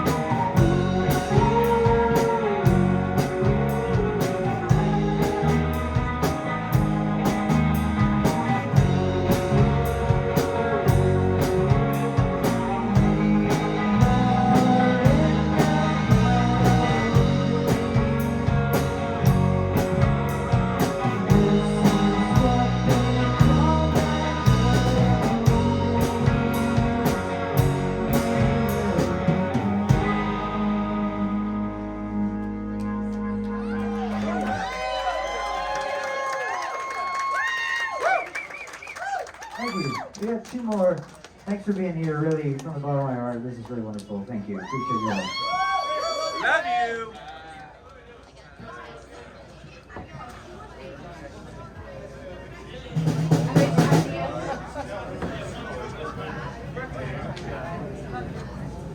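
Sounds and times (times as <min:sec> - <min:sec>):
live rock band playing: 0:00.0 - 0:34.9, 0:53.0 - 0:54.3.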